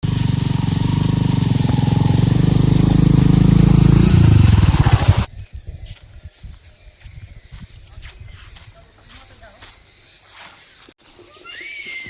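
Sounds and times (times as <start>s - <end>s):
engine running: 0.0s - 5.3s.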